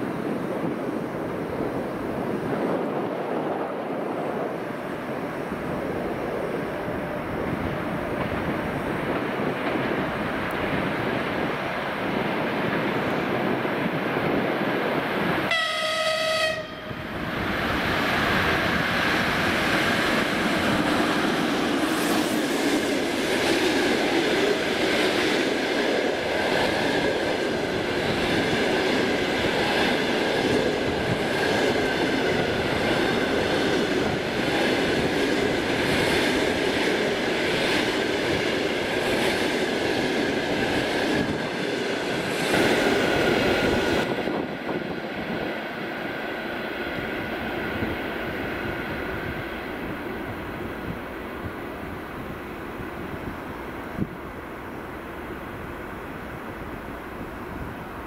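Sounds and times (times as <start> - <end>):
train coaches rumbling past: 0.0 - 58.0
locomotive horn blast: 15.5 - 17.1.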